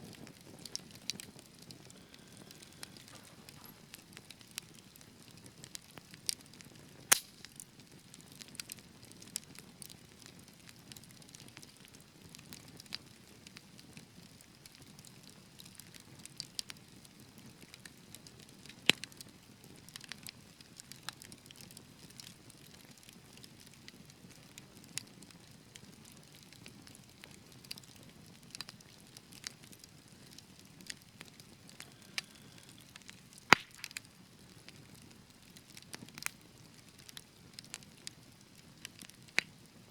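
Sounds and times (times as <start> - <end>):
wood fire hissing: 0.0 - 9.4, 28.6 - 39.8
fire crackles and pops: 0.0 - 39.9.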